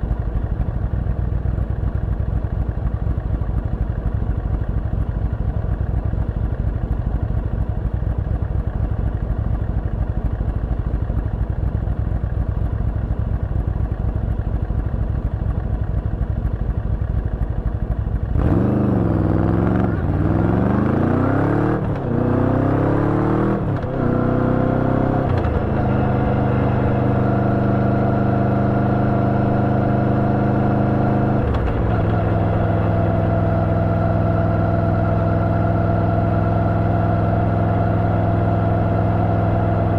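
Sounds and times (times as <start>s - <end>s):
motorcycle engine revving: 18.0s - 39.9s.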